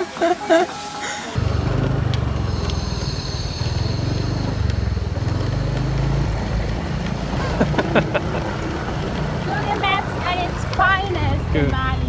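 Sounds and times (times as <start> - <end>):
faint high whine: 0.0 - 9.6
motor scooter engine running: 1.4 - 12.0.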